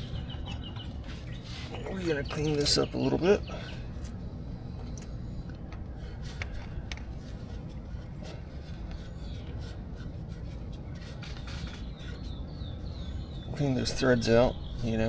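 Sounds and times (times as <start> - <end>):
rag rubbing and wiping: 6.0 - 15.0.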